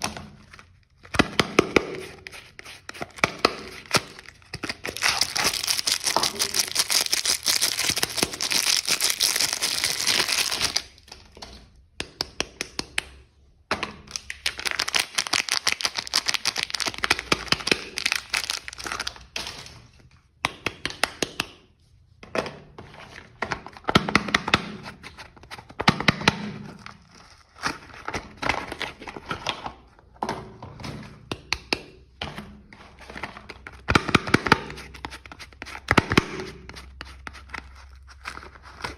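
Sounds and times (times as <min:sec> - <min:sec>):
packaging crinkling and tearing: 0:02.2 - 0:11.1, 0:14.2 - 0:19.4, 0:37.3 - 0:38.9.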